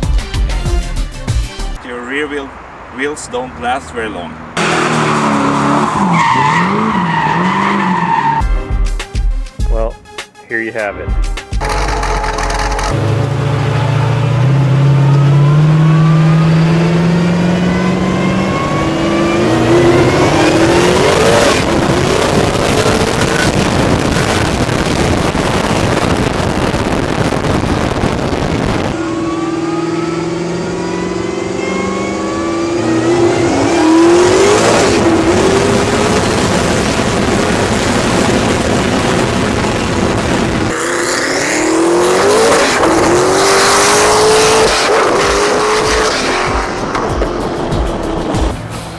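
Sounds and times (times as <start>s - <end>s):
car engine accelerating hard: 2.4s - 8.4s, 11.6s - 48.9s.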